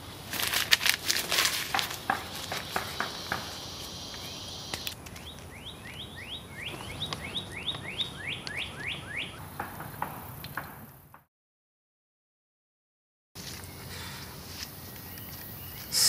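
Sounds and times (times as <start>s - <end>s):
paper crumpling: 0.3s - 2.8s
bird chirping: 2.1s - 9.6s, 13.6s - 16.0s.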